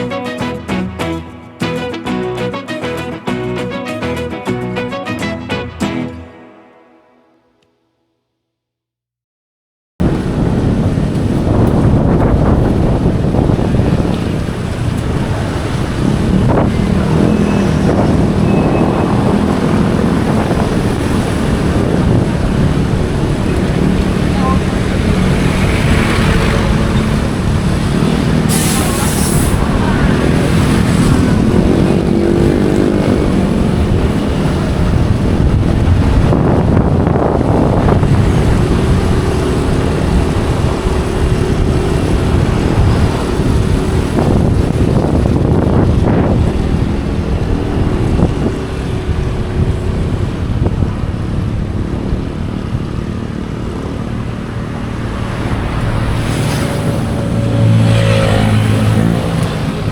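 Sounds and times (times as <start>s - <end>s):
road and wind noise: 0.0s - 4.9s, 10.0s - 59.9s
brief sharp hiss: 28.5s - 29.7s.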